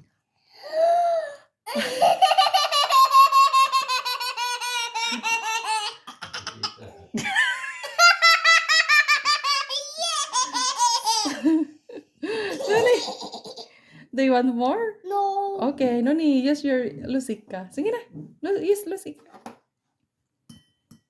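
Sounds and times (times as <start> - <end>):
young child laughing: 1.7 - 13.7.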